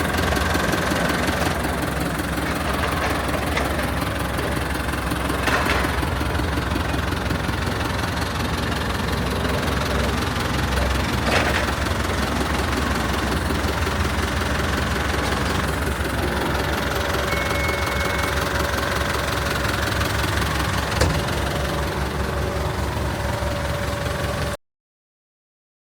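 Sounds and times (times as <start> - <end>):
tractor diesel engine running: 0.0 - 24.6.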